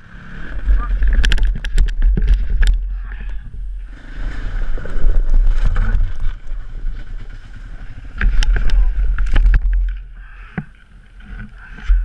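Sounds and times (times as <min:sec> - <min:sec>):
low rumble and buffeting: 0:00.0 - 0:10.8.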